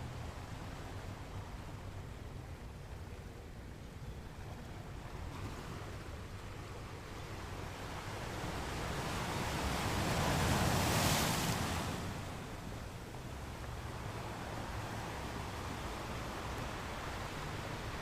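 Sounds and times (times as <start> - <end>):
ocean waves surf: 4.3 - 18.0.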